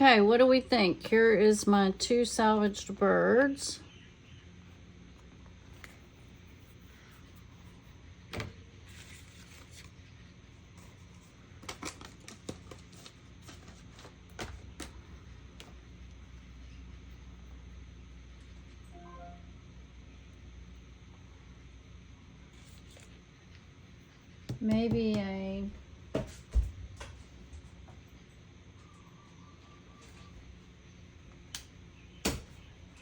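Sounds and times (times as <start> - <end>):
low steady hum: 0.0 - 33.0
art supplies and paper tapping: 24.4 - 25.4.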